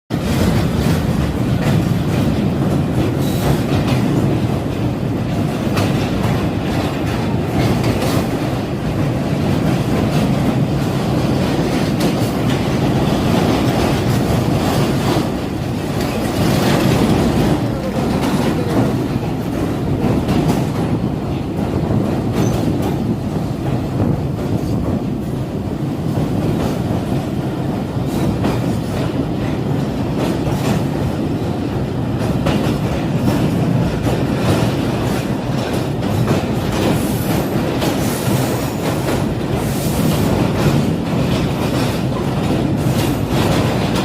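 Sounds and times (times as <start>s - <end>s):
wheels clattering over rail joints: 0.1s - 25.4s
train rumbling on rails: 0.1s - 44.0s.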